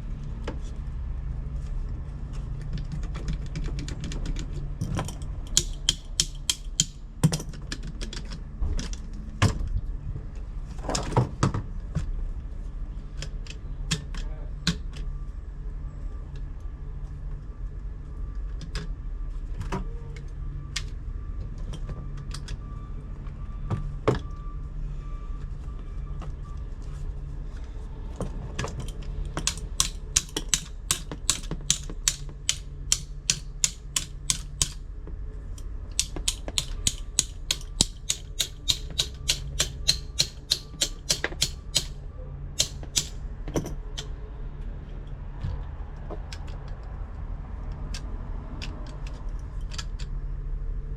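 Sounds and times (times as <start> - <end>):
metallic hand tool clicks: 5.4 - 7.0, 29.4 - 34.8, 35.9 - 42.0, 42.6 - 43.2.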